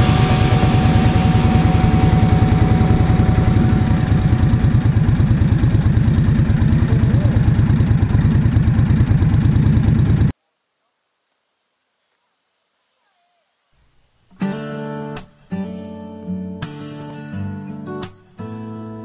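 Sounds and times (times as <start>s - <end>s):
motorcycle engine running: 0.0s - 10.3s.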